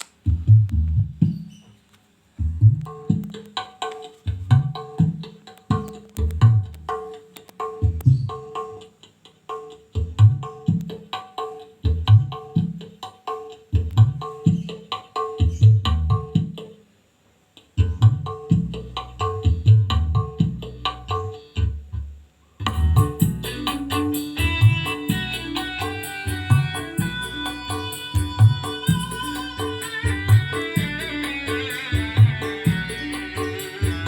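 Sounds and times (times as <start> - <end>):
percussion music with deep bass: 0.2 - 1.6, 2.4 - 16.7, 17.7 - 22.0, 22.6 - 34.0.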